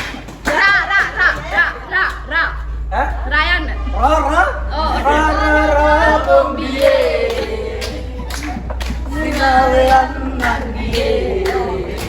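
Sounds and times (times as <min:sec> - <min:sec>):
hand-clapping: 0:00.0 - 0:02.4, 0:06.2 - 0:12.0
steady low rumble: 0:01.8 - 0:12.0
group of people singing: 0:04.0 - 0:12.0.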